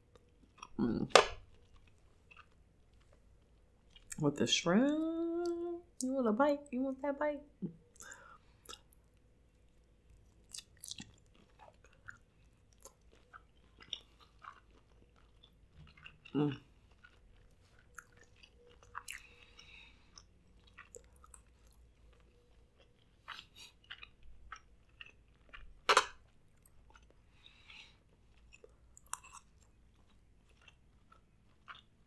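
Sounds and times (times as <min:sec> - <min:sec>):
person chewing: 0:00.0 - 0:04.2, 0:07.7 - 0:32.0
wet mouth clicks and smacks: 0:07.9 - 0:08.9, 0:10.5 - 0:14.6.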